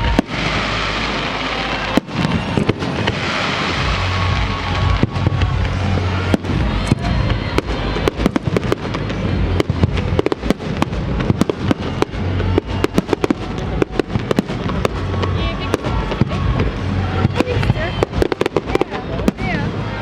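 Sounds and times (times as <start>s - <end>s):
fireworks bangs and crackling pops: 0.0s - 20.0s
music playing: 0.0s - 20.0s.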